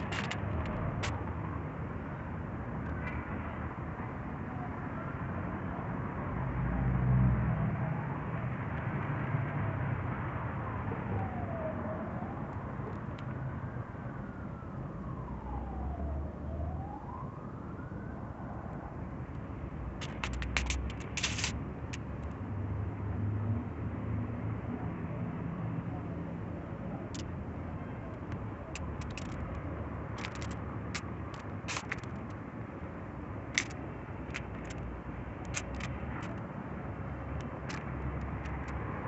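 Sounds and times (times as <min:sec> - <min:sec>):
cluster of clicks: 0:00.0 - 0:01.4, 0:19.3 - 0:22.4, 0:27.0 - 0:27.4, 0:28.0 - 0:32.4, 0:33.5 - 0:39.0
road traffic rumble: 0:00.0 - 0:39.0
emergency siren wailing: 0:06.7 - 0:08.7, 0:09.4 - 0:22.3, 0:24.7 - 0:39.0.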